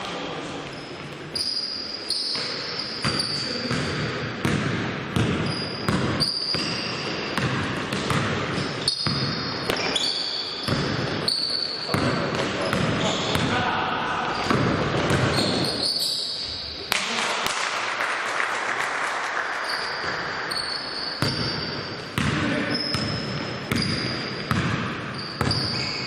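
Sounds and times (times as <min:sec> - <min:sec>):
shoes squeaking: 0:00.7 - 0:03.7, 0:08.5 - 0:13.4, 0:14.3 - 0:16.9, 0:19.6 - 0:26.0
basketball bouncing on court floor: 0:02.3 - 0:13.6, 0:14.4 - 0:15.9, 0:19.9 - 0:26.0.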